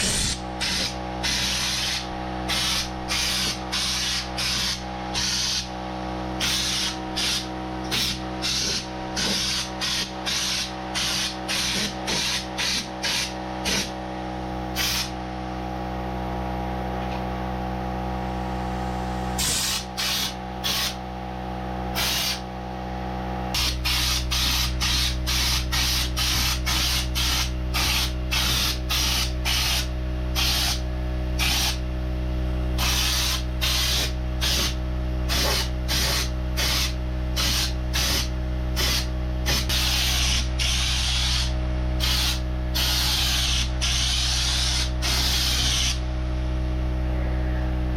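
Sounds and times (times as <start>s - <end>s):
spray gun hissing: 0.0s - 5.7s, 6.4s - 13.9s, 14.7s - 15.1s, 19.4s - 21.0s, 22.0s - 22.4s, 23.6s - 30.8s, 31.4s - 31.8s, 32.8s - 46.0s
steady machine hum: 0.0s - 47.9s.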